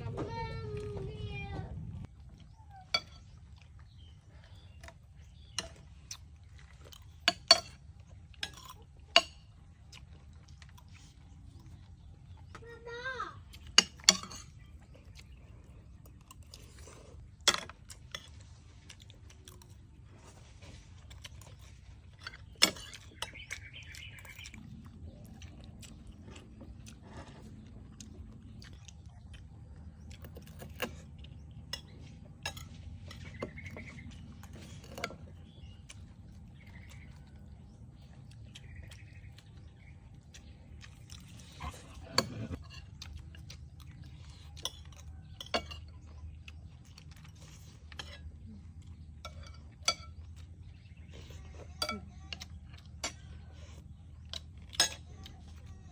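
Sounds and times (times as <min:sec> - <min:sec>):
steady low hum: 0:00.0 - 0:55.7
dishes and utensils clinking: 0:02.8 - 0:03.4, 0:06.9 - 0:09.6, 0:13.6 - 0:14.6, 0:22.2 - 0:24.5, 0:44.5 - 0:46.2, 0:49.2 - 0:50.5.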